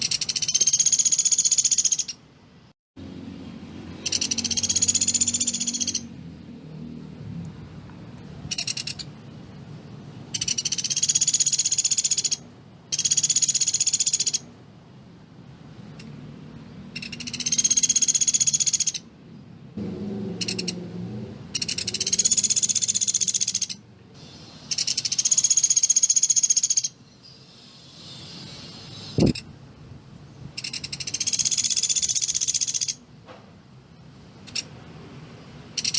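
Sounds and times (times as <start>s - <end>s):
woodpecker rattling trills: 0.0s - 2.2s, 4.0s - 6.1s, 8.5s - 9.2s, 10.3s - 14.5s, 16.9s - 19.1s, 20.4s - 20.8s, 21.5s - 23.8s, 24.7s - 27.0s, 30.6s - 33.0s.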